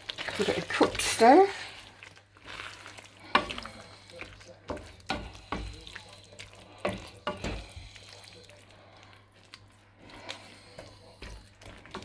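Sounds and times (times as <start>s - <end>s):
sauce bubbling: 0.0s - 12.0s
spoon stirring sauce in saucepan: 0.0s - 12.0s
spoon knocking against pan: 4.7s - 5.8s, 6.8s - 7.7s.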